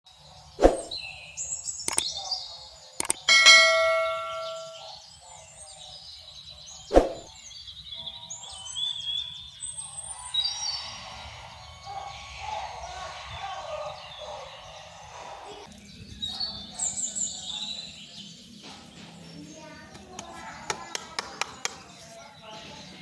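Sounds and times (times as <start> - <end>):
birds chirping: 0.1 - 23.0
sharp clicks: 1.8 - 2.1, 3.0 - 3.3
metallic ring: 3.2 - 4.9.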